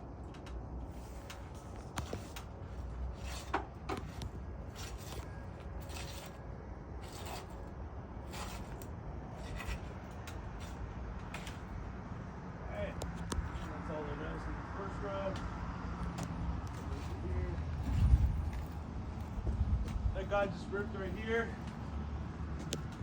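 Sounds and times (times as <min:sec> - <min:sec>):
steady low rumble: 0:00.0 - 0:23.0
flat bar scraping under shingles: 0:00.8 - 0:06.4, 0:07.0 - 0:11.8.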